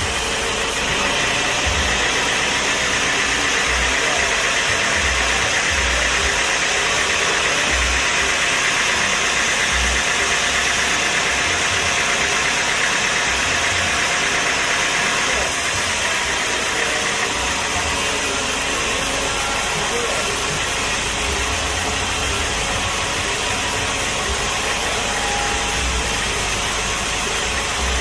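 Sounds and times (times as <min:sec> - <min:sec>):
machine engine running: 0:00.0 - 0:28.0.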